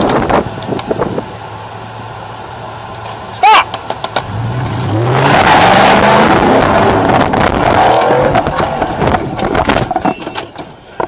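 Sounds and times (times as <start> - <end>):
vehicle engine revving: 4.1 - 9.9
loud rushing noise: 4.9 - 9.6.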